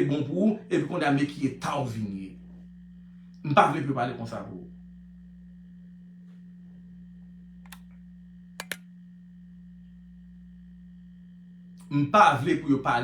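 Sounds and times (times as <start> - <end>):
short sharp clicks: 7.7 - 7.9, 8.6 - 8.8.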